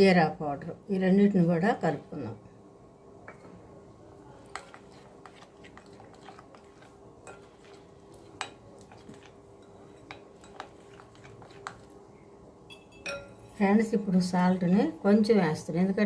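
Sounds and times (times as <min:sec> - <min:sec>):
spoon clinking against bowl: 0:04.5 - 0:11.9, 0:12.7 - 0:13.6.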